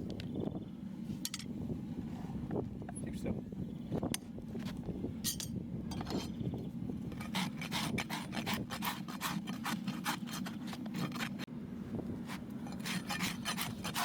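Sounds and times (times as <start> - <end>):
rasp filing a hoof: 7.1 - 11.5, 12.2 - 14.0.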